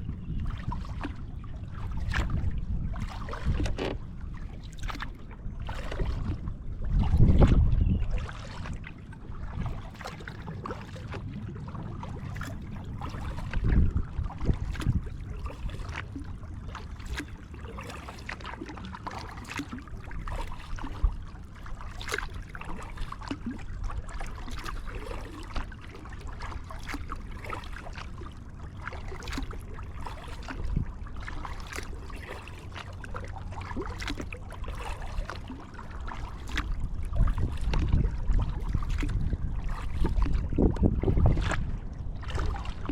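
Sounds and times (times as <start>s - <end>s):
wind buffeting microphone: 0.0s - 10.2s, 10.9s - 16.7s, 30.3s - 31.5s, 36.5s - 42.9s
kayak paddle splashing: 0.0s - 42.9s.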